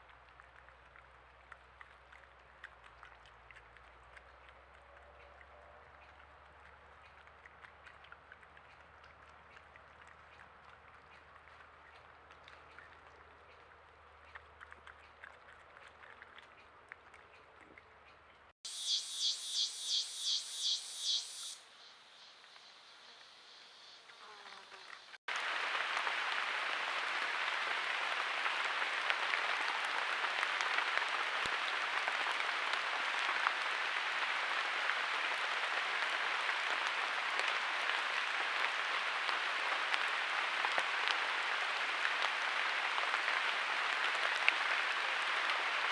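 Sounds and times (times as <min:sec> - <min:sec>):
faint forest ambience: 0:18.2 - 0:29.7
heavy rain falling: 0:25.3 - 0:45.9.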